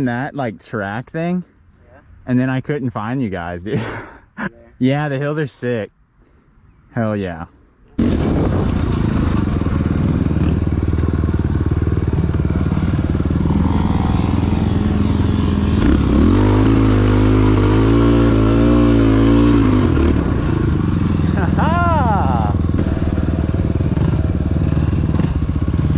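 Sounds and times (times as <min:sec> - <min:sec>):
dirt bike engine revving: 0:08.0 - 0:25.9.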